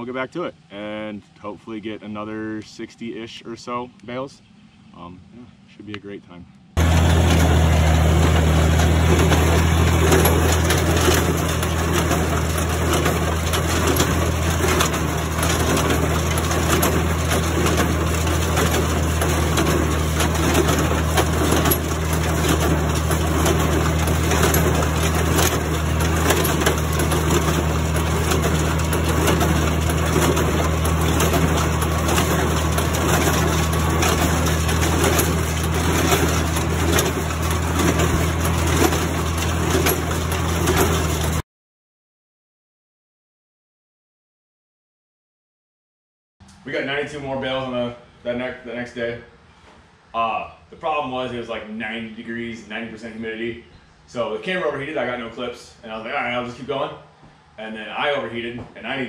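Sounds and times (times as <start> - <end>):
hay baler clattering: 6.8 - 41.4
old tractor engine running: 6.8 - 41.4.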